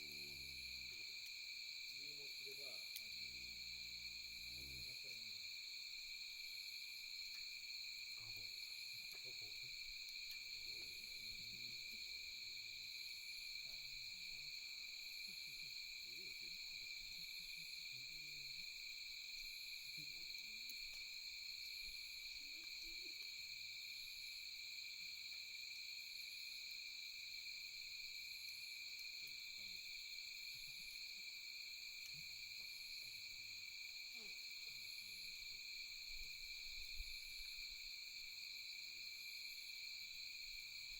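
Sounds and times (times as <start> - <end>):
crickets trilling: 0.0 - 40.9
high insect chirp: 0.0 - 40.9.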